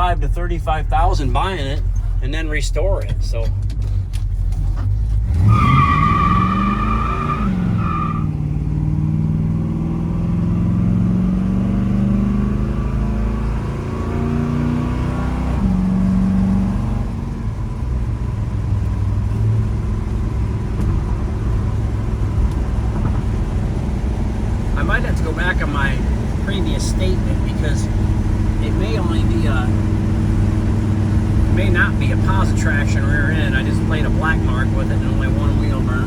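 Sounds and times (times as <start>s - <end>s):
car engine accelerating hard: 0.0s - 36.0s
tyre squealing: 5.2s - 8.4s.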